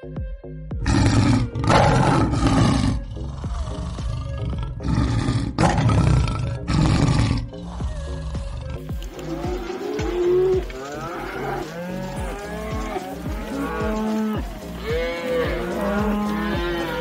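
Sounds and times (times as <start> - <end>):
background music with steady beat: 0.0 - 17.0
lion roaring: 0.8 - 7.8.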